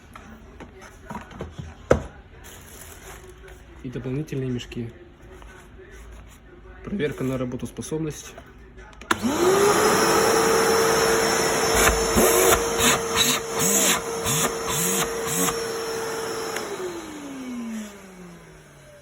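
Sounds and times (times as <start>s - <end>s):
shop vacuum motor whining: 9.1s - 19.0s.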